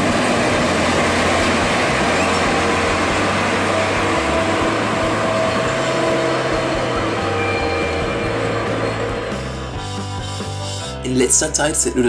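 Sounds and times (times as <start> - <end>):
low hum: 0.0 - 10.3
train rail rumble: 0.0 - 11.0
faint held tone: 2.0 - 9.8.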